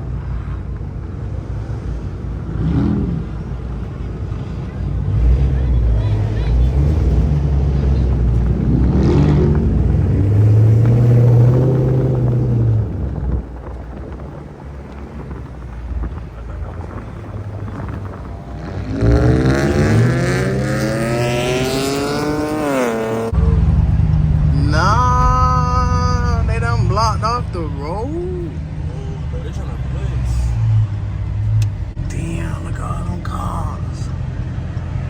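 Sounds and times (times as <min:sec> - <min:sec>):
low engine rumble: 0:00.0 - 0:35.0
engine revving up: 0:01.6 - 0:14.2, 0:14.9 - 0:27.9.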